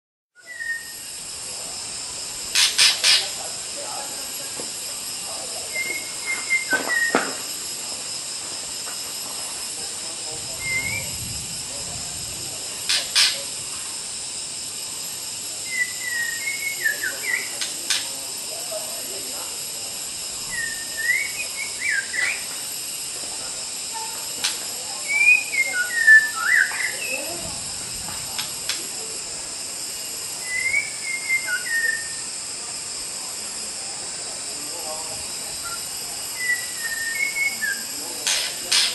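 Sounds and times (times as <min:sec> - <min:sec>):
steady high hiss: 0:00.4 - 0:38.9
bird whistling warbling phrase: 0:00.5 - 0:01.0, 0:05.7 - 0:07.3, 0:10.6 - 0:11.1, 0:15.7 - 0:17.6, 0:20.5 - 0:22.4, 0:25.0 - 0:27.2, 0:30.4 - 0:32.2, 0:36.4 - 0:38.9.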